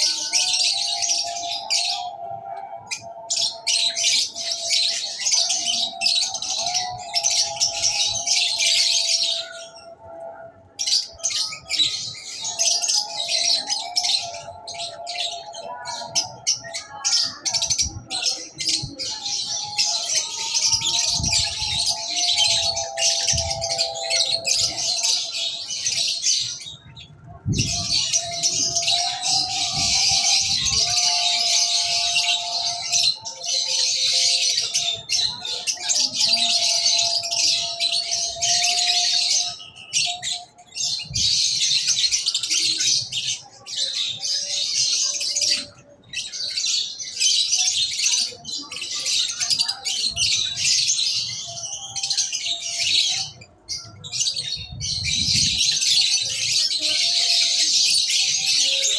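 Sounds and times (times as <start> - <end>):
small birds chirping rapidly: 0.0 - 58.9.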